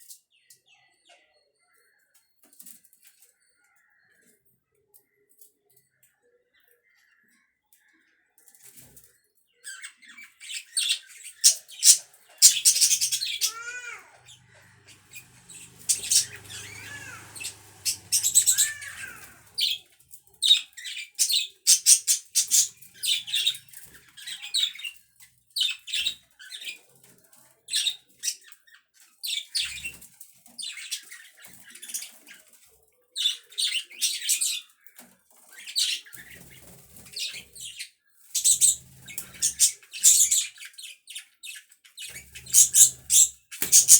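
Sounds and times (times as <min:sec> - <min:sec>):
budgerigars chattering and chirping: 0:09.7 - 0:25.0, 0:38.4 - 0:41.0, 0:42.0 - 0:43.9.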